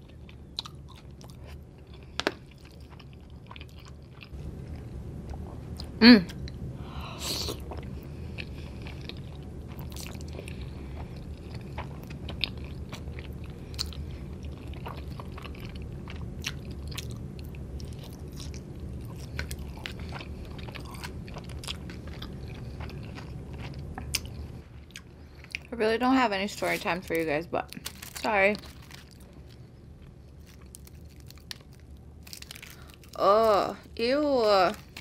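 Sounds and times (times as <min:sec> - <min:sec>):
person chewing pasta: 0:00.0 - 0:06.5, 0:07.5 - 0:25.7, 0:27.8 - 0:33.2
faint low hum: 0:00.0 - 0:35.0.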